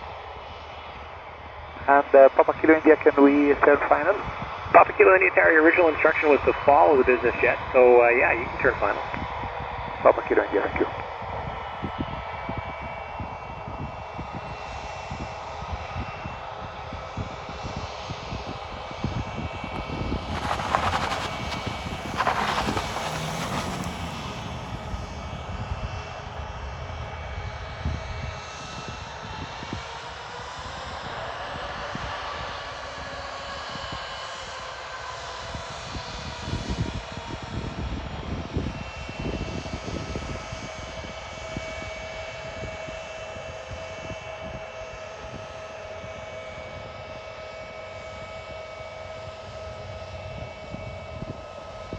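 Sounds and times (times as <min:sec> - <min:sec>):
wind buffeting microphone: 0:17.1 - 0:29.7
jet engines running: 0:17.3 - 0:28.4.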